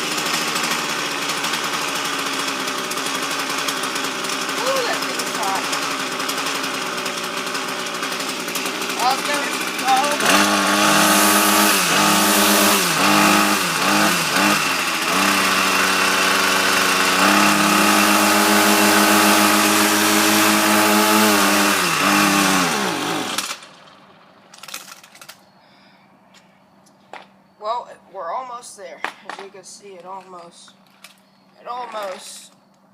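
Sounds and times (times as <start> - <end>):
string trimmer engine sputtering: 0.0 - 25.5.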